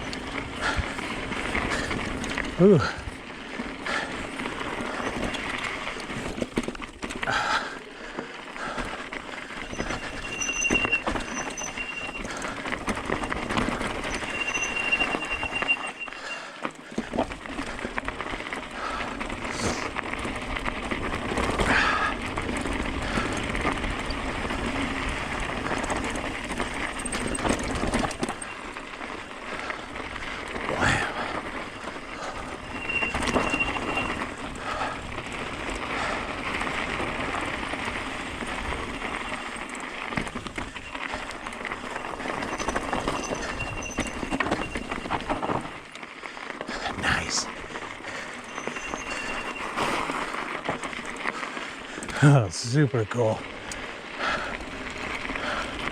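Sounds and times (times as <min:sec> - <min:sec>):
disc brakes squealing: 0:00.0 - 0:02.0, 0:04.3 - 0:06.4, 0:09.2 - 0:16.7, 0:23.0 - 0:45.8, 0:47.2 - 0:51.2
bike tyres on rocky trail: 0:00.0 - 0:55.9.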